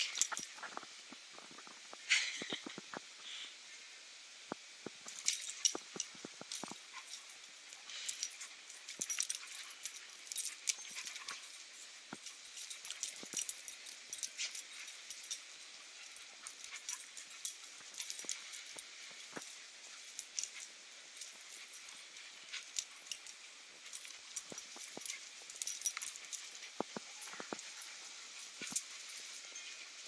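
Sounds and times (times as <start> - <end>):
dogs scuffling: 5.0 - 30.0.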